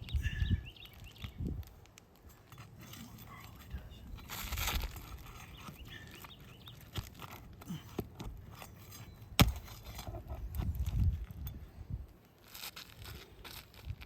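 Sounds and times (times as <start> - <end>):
pry bar scraping: 0.4 - 11.6.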